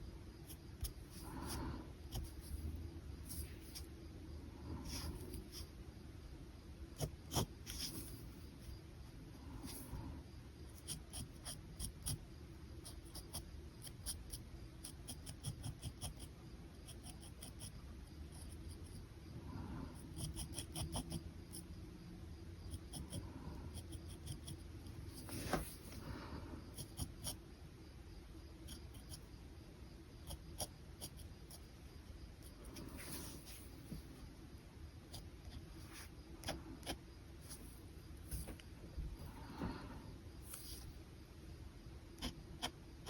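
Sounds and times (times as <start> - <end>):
pen scratching on paper: 0.4 - 3.9, 4.7 - 5.7, 7.0 - 8.4, 10.7 - 12.2, 12.8 - 17.7, 19.9 - 21.6, 22.7 - 27.4, 30.2 - 31.7, 32.4 - 34.2, 35.1 - 38.6, 42.2 - 42.8.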